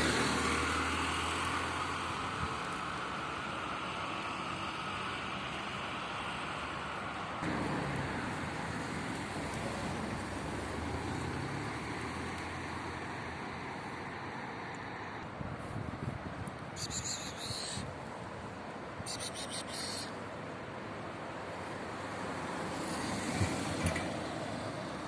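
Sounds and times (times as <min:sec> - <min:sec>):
vehicle low rumble: 0:00.0 - 0:19.5
road traffic noise: 0:00.0 - 0:25.0.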